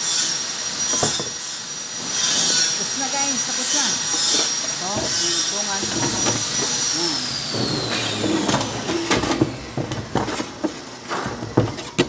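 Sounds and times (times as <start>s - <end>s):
high whine sliding down: 5.5s - 10.8s.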